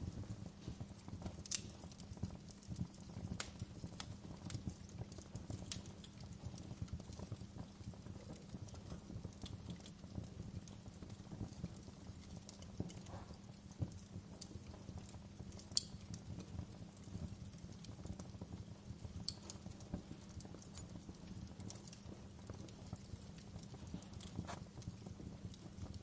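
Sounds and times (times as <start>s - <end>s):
fire crackling: 0.0s - 26.0s.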